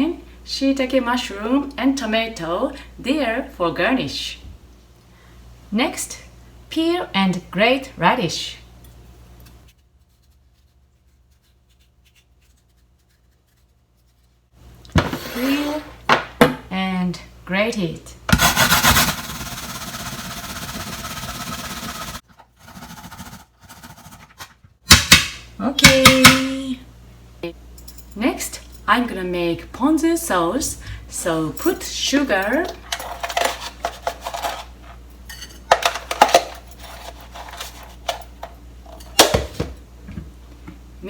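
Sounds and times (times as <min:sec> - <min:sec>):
utensils clinking against pot: 0:32.4 - 0:39.2.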